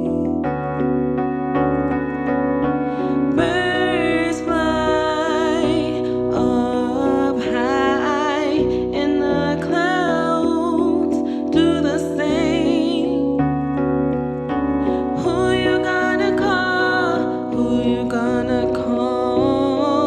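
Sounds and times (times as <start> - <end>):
woman singing with vibrato: 0.0 - 0.5, 3.3 - 13.4, 14.9 - 20.0
sustained piano chords: 0.0 - 20.0.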